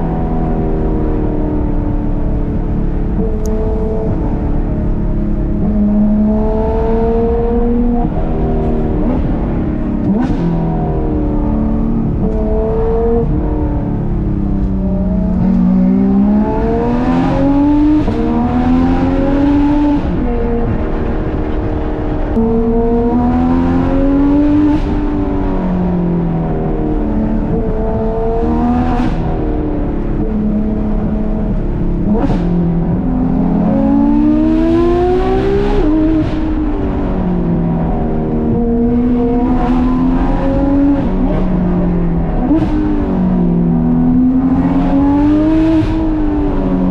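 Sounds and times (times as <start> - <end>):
sports car engine revving: 0.0 - 46.9.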